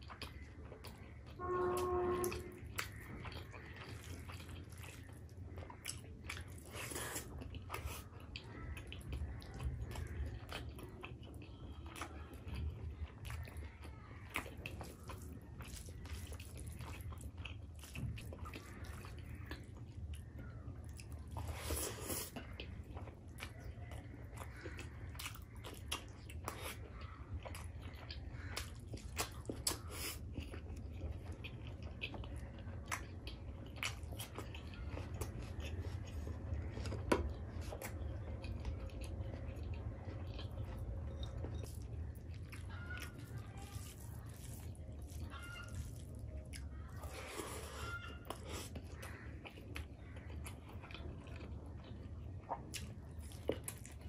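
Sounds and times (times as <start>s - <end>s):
person chewing and biting: 1.7s - 13.5s, 14.3s - 20.1s, 20.8s - 54.0s
steady low hum: 22.3s - 45.3s.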